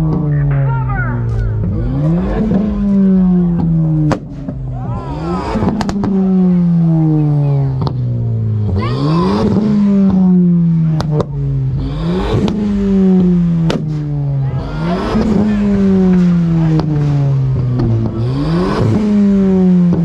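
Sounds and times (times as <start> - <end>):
car engine revving: 0.0 - 20.0
sharp exhaust pops: 2.4 - 4.7, 5.5 - 6.3, 9.4 - 11.4, 12.2 - 14.2, 15.1 - 20.0.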